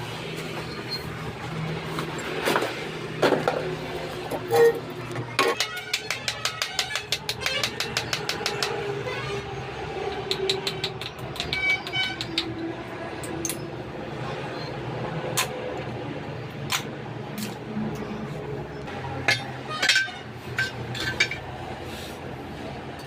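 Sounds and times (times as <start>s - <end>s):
metal knocks and clinks: 19.2s - 21.5s.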